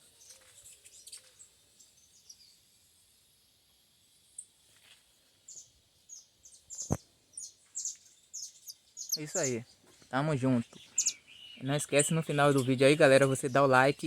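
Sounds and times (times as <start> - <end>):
faint outdoor background noise: 0.0 - 14.0
birds chirping: 5.4 - 14.0.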